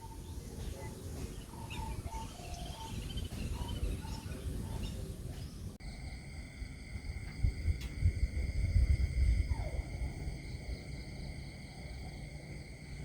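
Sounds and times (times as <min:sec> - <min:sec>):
high bird chirps: 0:00.0 - 0:05.6
birds whistling: 0:00.0 - 0:05.7
low rumble: 0:02.8 - 0:13.0.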